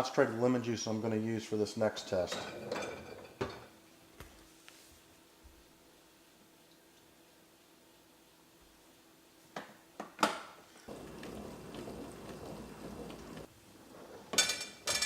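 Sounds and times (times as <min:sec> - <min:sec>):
plates clinking: 0:14.3 - 0:15.0.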